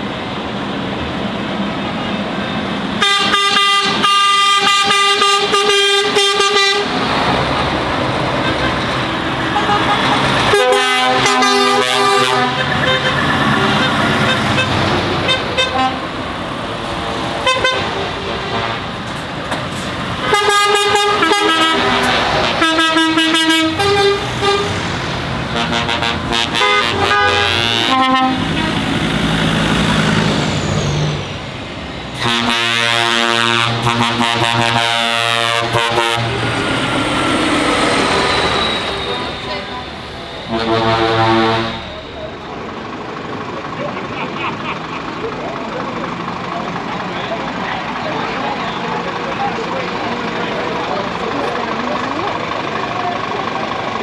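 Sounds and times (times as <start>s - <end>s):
lorry engines running: 0.0s - 54.0s
lorry horn blasts: 3.0s - 7.7s, 8.3s - 16.3s, 17.4s - 29.6s, 32.1s - 42.5s.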